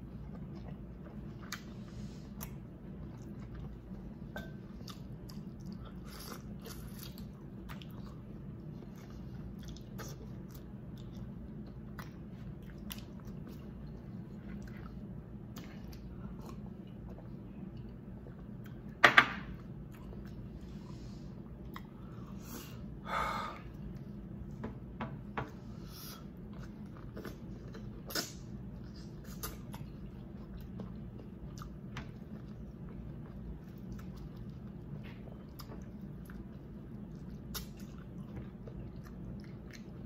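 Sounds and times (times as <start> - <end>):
chewing and mouth noises: 0.0 - 19.0, 19.6 - 22.8, 26.2 - 40.0
steady low hum: 0.0 - 40.0.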